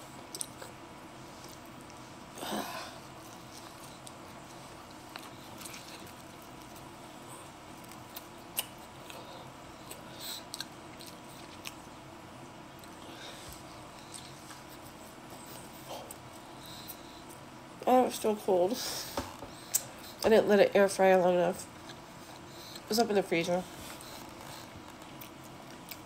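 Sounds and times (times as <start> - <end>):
chewing pizza: 0.0 - 17.5, 23.6 - 26.0.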